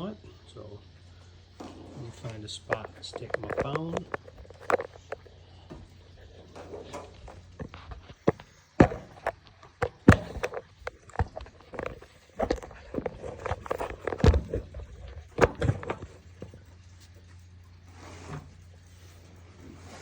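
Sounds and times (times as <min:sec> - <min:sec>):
phone handling knocks and rustling: 0:06.9 - 0:16.2.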